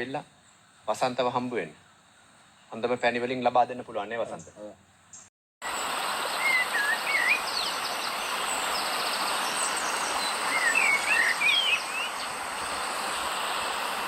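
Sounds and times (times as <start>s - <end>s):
steady hiss: 0.0s - 14.0s
high insect whine: 5.7s - 14.0s
bird warbling whistles: 6.4s - 12.3s.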